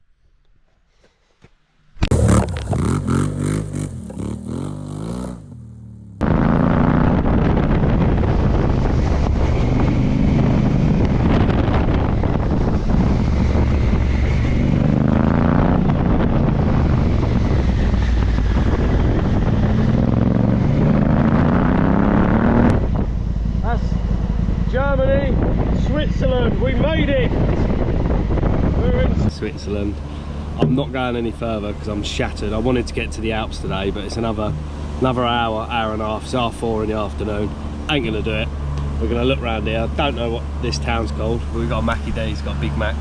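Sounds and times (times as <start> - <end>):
motorcycle engine revving: 2.0 - 43.0
wind noise on microphone: 6.2 - 29.3.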